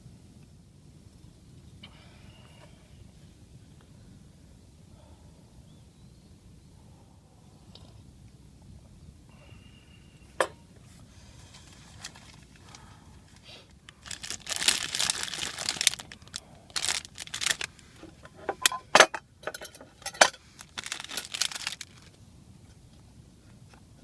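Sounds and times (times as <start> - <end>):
crinkling and rustling: 10.8 - 23.8.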